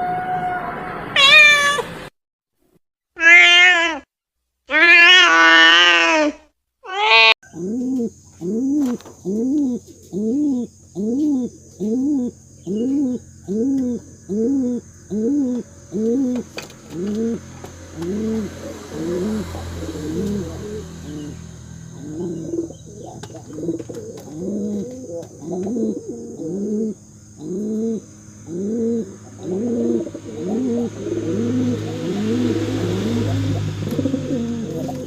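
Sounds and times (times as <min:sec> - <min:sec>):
cat meowing: 0:00.0 - 0:02.0, 0:03.2 - 0:04.1, 0:04.7 - 0:07.4
pigeons cooing: 0:07.4 - 0:35.0.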